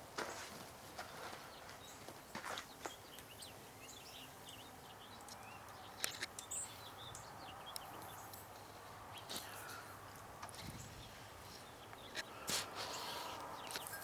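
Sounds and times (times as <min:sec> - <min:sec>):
small birds chirping: 0:00.2 - 0:14.0
sharp clicks: 0:05.2 - 0:06.5.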